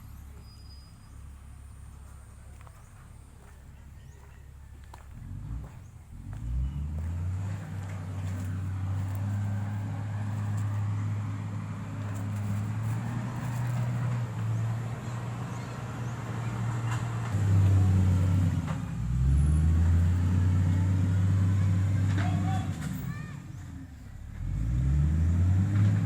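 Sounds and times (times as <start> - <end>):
diesel engine running: 1.2 - 26.0.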